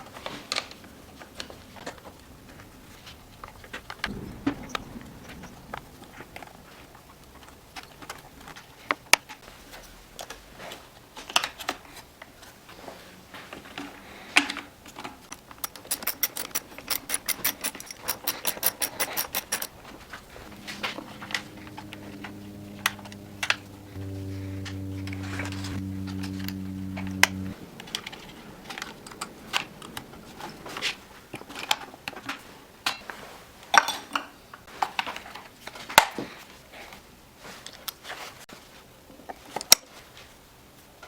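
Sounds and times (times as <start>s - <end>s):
hand tools clicking and knocking: 15.3s - 20.0s
fast run of even clicks: 15.3s - 24.0s
faint steady hum: 18.9s - 31.4s.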